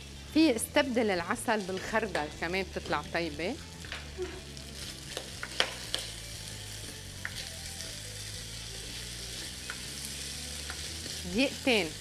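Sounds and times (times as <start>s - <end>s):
food sizzling in a pan: 0.0s - 12.0s
spatula clicking against pan: 5.1s - 6.1s.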